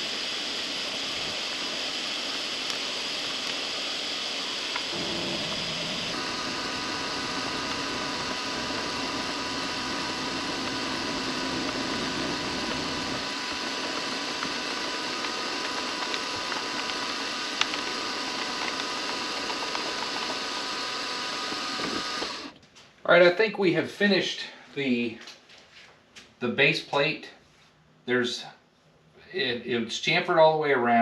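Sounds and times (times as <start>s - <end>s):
milling machine whining: 0.0s - 22.6s.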